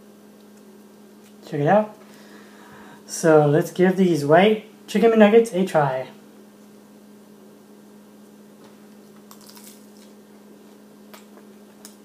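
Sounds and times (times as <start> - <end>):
low electrical hum: 0.0 - 12.0
crisp chewing clicks: 9.2 - 10.2.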